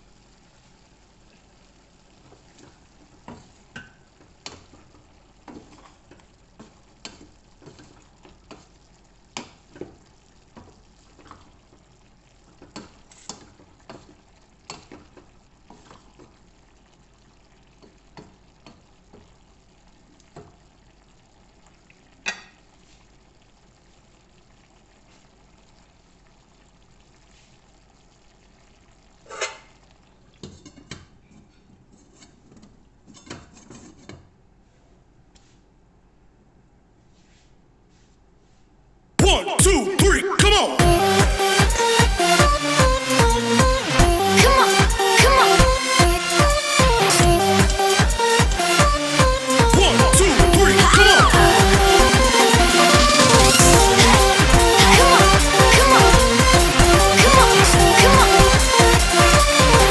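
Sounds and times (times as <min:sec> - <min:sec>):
faint frying sizzle: 0:00.0 - 0:35.8.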